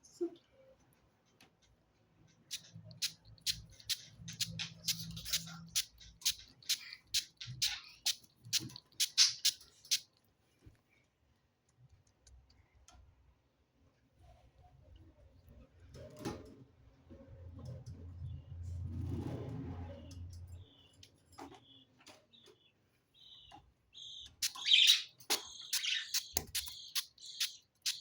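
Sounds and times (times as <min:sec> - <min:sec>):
parrot clicking and chirping: 0:02.3 - 0:10.2, 0:23.2 - 0:28.0.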